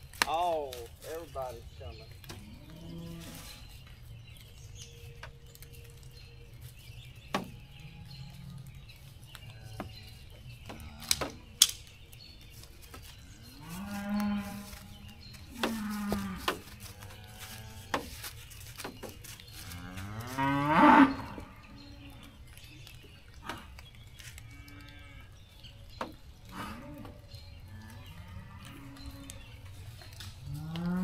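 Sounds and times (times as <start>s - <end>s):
sharp clicks: 11.0s - 12.2s.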